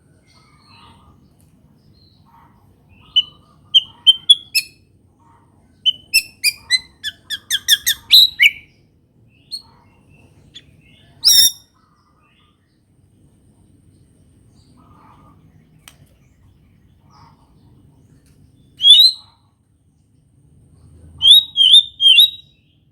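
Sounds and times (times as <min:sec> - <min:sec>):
bird singing whistled song: 0:03.1 - 0:04.8, 0:05.8 - 0:08.7, 0:09.4 - 0:09.6, 0:10.6 - 0:11.7, 0:18.8 - 0:19.3, 0:21.2 - 0:22.8
harsh bird call: 0:10.6 - 0:11.6, 0:18.8 - 0:19.3, 0:21.2 - 0:22.6.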